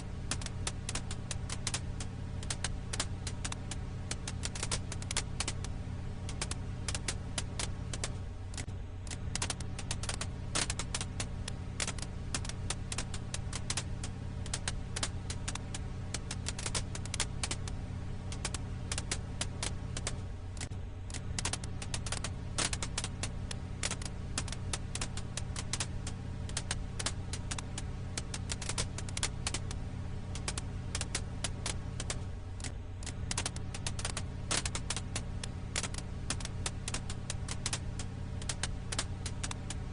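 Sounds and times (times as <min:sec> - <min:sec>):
campfire crackling and popping: 0:00.0 - 0:39.9
low fire hum: 0:00.0 - 0:39.9.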